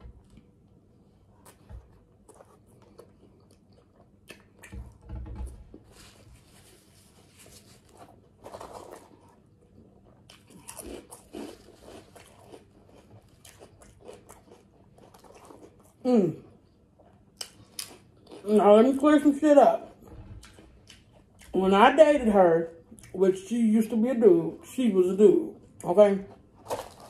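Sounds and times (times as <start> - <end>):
chewing and crunching chips: 1.3 - 5.0, 5.7 - 22.0, 25.6 - 27.0.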